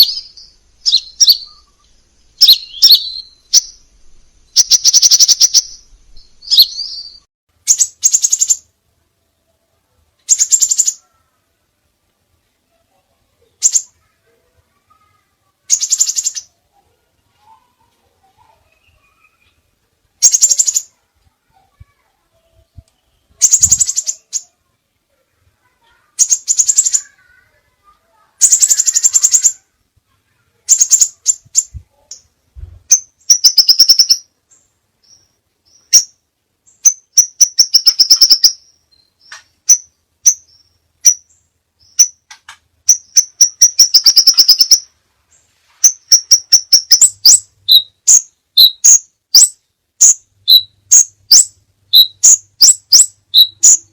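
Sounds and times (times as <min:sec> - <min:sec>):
short sharp bird chirps: 0:00.0 - 0:03.9, 0:04.5 - 0:08.7, 0:42.9 - 0:53.9
bird high-pitched trills: 0:00.0 - 0:08.7, 0:10.3 - 0:11.1, 0:23.2 - 0:24.6, 0:26.1 - 0:27.4, 0:28.4 - 0:29.7, 0:30.7 - 0:32.2, 0:32.9 - 0:34.3, 0:35.0 - 0:42.3, 0:42.9 - 0:44.9, 0:45.8 - 0:53.9.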